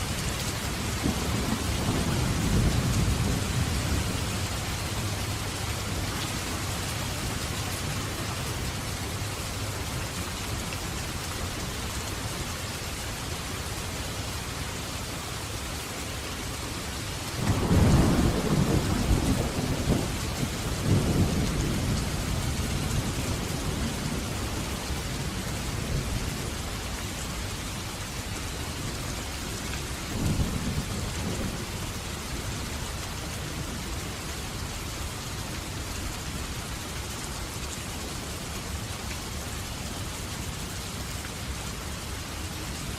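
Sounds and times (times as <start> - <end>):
steady rain: 0.0 - 42.9
thunder rumbling: 17.4 - 26.3.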